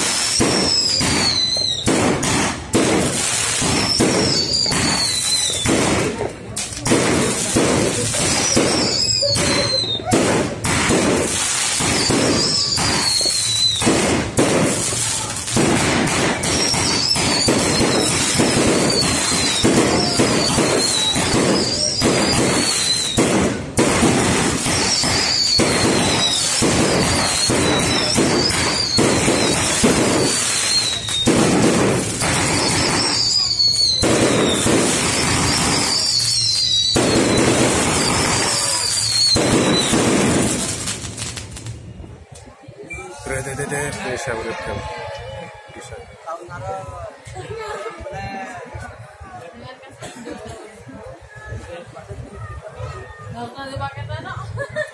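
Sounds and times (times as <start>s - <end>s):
falling firework whistles: 0.0s - 6.2s, 7.0s - 44.0s
fireworks crackling and banging: 0.0s - 54.9s.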